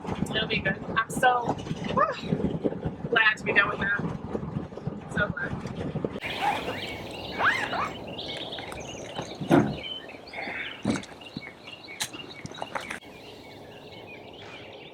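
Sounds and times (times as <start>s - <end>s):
birds chirping: 6.2s - 14.9s.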